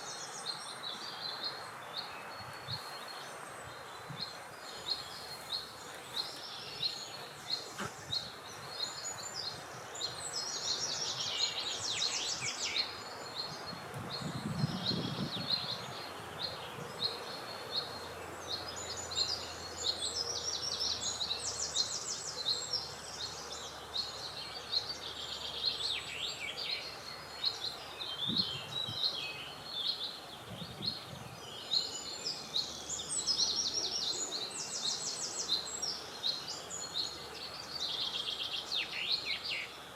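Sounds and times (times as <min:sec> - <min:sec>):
songbirds chirping and trilling: 0:00.0 - 0:39.9
wind noise: 0:02.3 - 0:04.6, 0:13.4 - 0:17.2, 0:28.1 - 0:29.2, 0:30.3 - 0:31.6.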